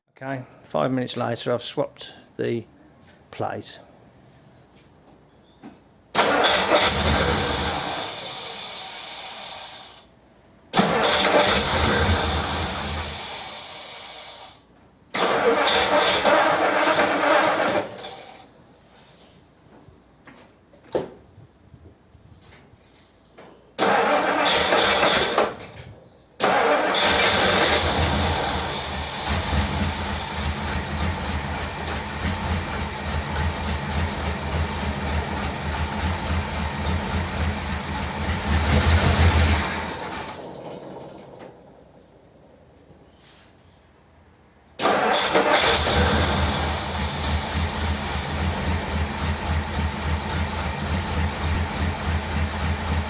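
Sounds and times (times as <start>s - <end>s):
car engine starting and running: 6.1s - 10.0s, 10.7s - 14.4s, 15.2s - 18.6s, 23.8s - 25.8s, 26.4s - 42.5s, 44.7s - 53.0s.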